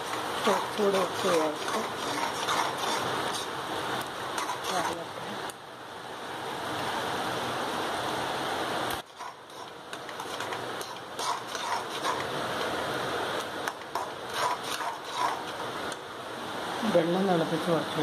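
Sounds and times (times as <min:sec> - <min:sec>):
spatula scraping a pan: 0:00.0 - 0:03.6, 0:04.3 - 0:05.1, 0:09.1 - 0:12.6, 0:13.7 - 0:15.6.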